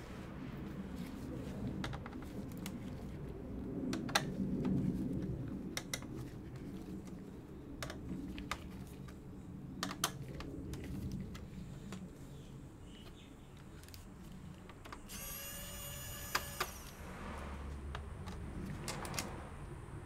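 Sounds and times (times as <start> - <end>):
plastic parts scraping and rubbing: 1.0 - 15.3, 17.9 - 19.4
sharp plastic clicks and taps: 5.8 - 6.1.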